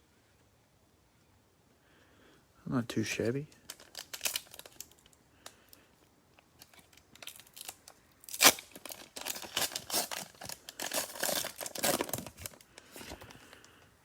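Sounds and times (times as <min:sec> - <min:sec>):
plastic wrapper crinkling: 0:03.5 - 0:05.6, 0:06.5 - 0:13.8
plastic wrapper tearing: 0:03.6 - 0:05.2, 0:06.6 - 0:13.5.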